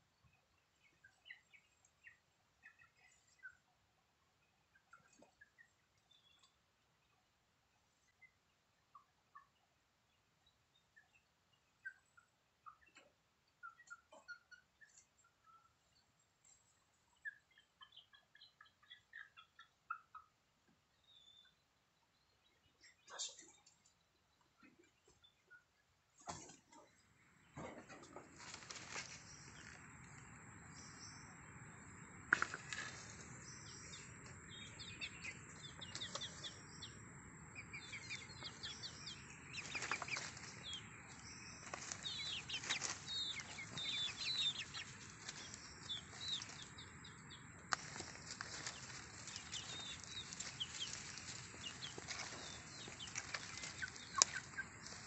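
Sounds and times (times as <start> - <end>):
rustling: 28.0 - 29.8, 39.6 - 46.8, 47.7 - 55.0.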